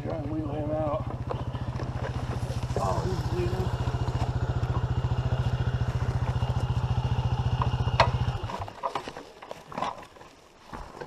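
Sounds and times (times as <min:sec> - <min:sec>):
dirt bike engine idling: 0:00.0 - 0:08.8.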